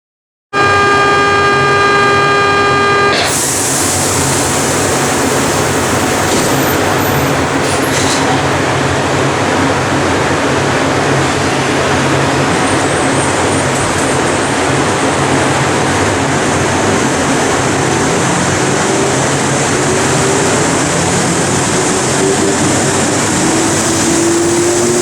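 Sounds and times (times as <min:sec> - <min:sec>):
door warning tone: 0:00.6 - 0:08.8
train rushing noise: 0:03.1 - 0:25.0.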